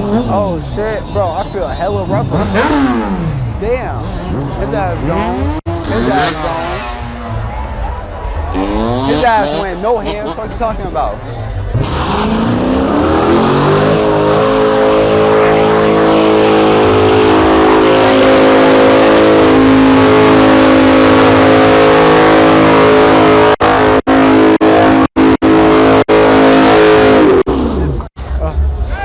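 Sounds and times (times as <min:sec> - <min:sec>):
car engine revving: 0:00.0 - 0:28.8.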